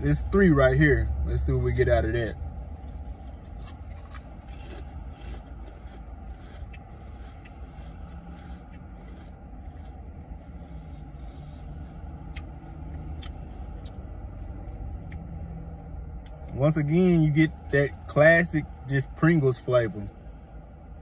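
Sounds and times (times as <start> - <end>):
steady low hum: 0.0 - 21.0
crisps being chewed: 2.7 - 15.4.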